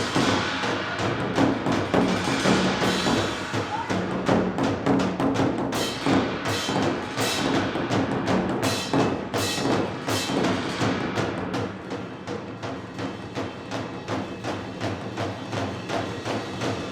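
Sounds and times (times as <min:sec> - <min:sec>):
rapid drum strokes: 0:00.0 - 0:16.9.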